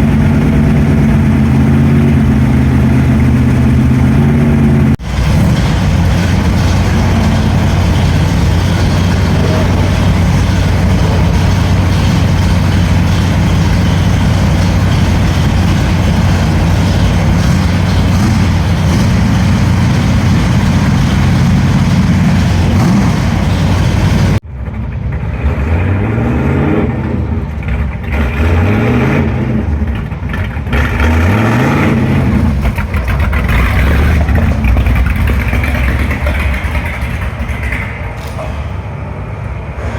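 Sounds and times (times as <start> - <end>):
car engine running: 0.0 - 25.4, 27.0 - 38.2
engines revving: 0.0 - 39.9.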